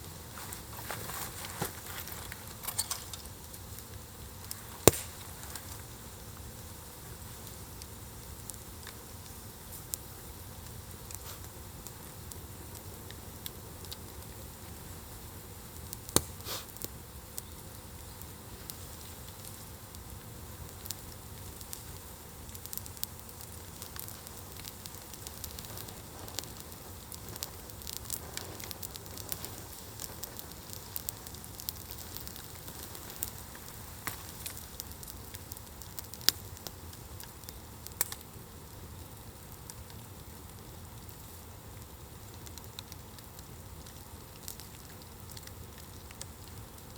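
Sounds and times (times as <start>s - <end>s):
wood fire crackling: 0.0s - 46.9s
sharp pops of fire: 0.1s - 46.9s.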